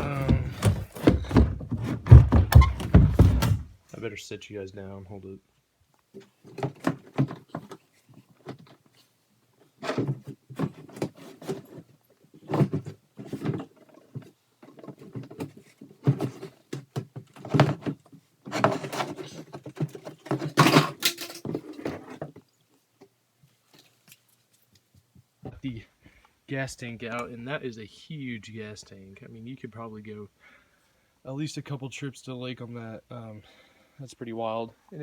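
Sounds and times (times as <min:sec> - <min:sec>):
fuel tank knocking against hull: 0:00.0 - 0:03.7.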